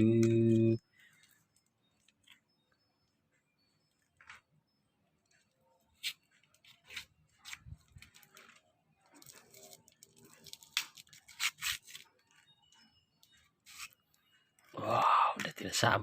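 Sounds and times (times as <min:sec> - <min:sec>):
plastic wrapper crinkling and tearing: 0:06.6 - 0:12.5.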